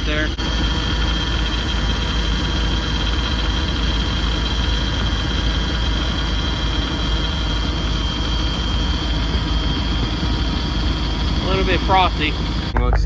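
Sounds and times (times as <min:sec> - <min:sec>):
engine idling: 0:00.0 - 0:13.0
high-pitched whine: 0:00.0 - 0:13.0.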